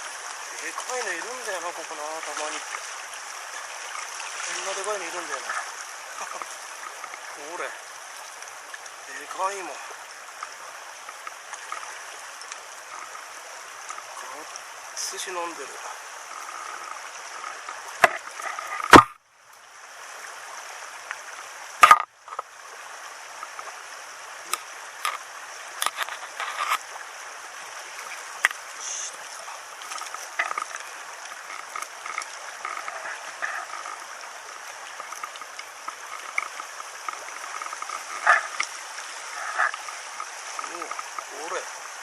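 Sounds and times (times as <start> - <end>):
small stream flowing: 0.0 - 42.0
sharp knocks: 18.8 - 19.2.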